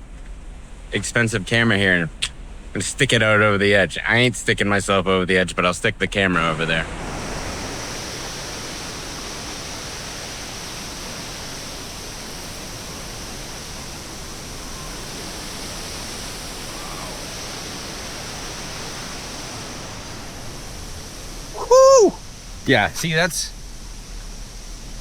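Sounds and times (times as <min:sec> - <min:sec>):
waterfall roaring and splashing: 0:06.2 - 0:25.0.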